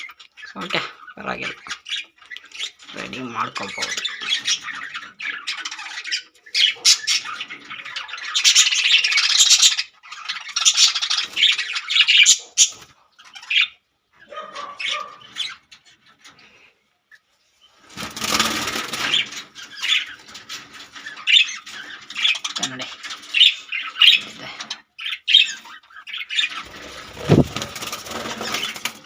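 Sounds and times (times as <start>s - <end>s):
budgies squawking and chattering: 0.0s - 29.0s.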